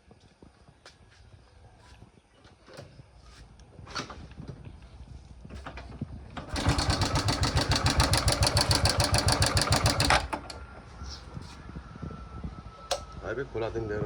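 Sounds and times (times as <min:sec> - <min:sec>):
motorcycle engine clattering: 0:05.6 - 0:10.6.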